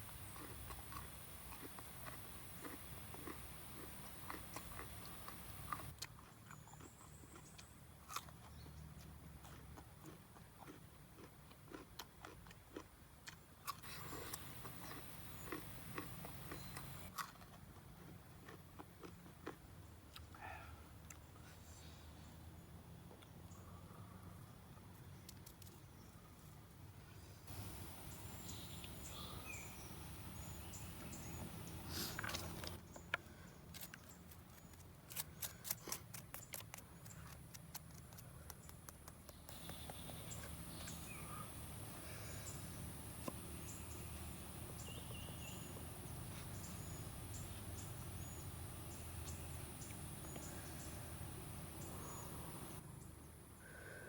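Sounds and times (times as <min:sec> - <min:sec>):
faint outdoor hush: 0:00.0 - 0:06.0, 0:13.6 - 0:17.1, 0:20.2 - 0:25.2, 0:25.9 - 0:54.0
small birds chirping: 0:00.0 - 0:09.0, 0:13.6 - 0:17.2, 0:27.5 - 0:54.0
rustle: 0:24.9 - 0:38.4, 0:39.5 - 0:54.0.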